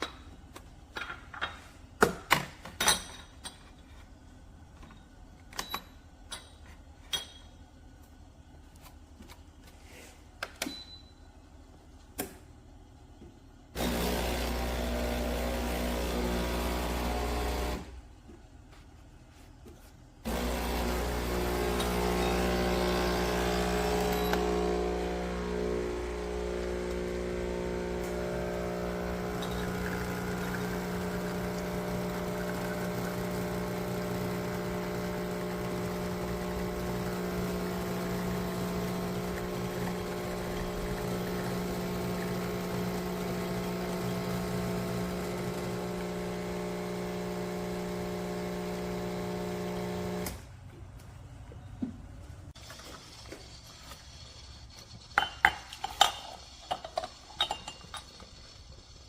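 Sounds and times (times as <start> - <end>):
espresso machine humming: 13.8 - 17.9, 20.3 - 50.4
cup clinking: 29.2 - 32.0, 55.2 - 58.2.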